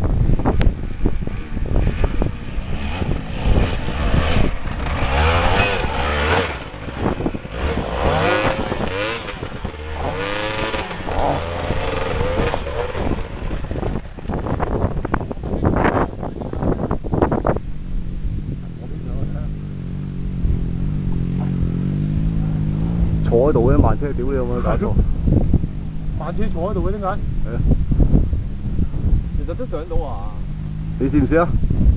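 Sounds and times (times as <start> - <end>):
dirt bike engine revving: 0.2 - 31.9.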